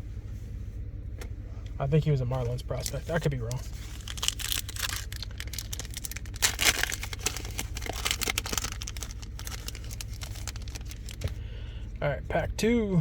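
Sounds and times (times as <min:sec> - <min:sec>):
steady low hum: 0:00.0 - 0:13.0
foil pack crinkling and tearing: 0:02.7 - 0:11.4.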